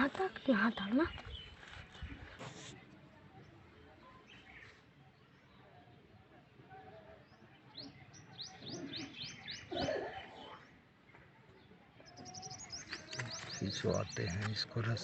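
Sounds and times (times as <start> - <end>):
bird chirping: 7.3 - 15.0.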